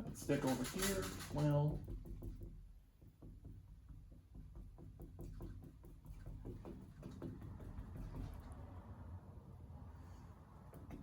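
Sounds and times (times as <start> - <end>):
paintbrush tapping on canvas: 1.8 - 8.5.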